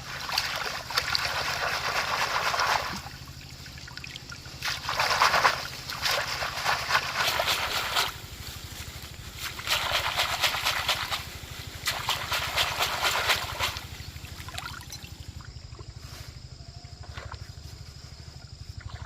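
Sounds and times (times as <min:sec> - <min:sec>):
crackly splashy noise: 0:00.0 - 0:08.6, 0:09.4 - 0:15.0
small engine running: 0:00.0 - 0:19.0.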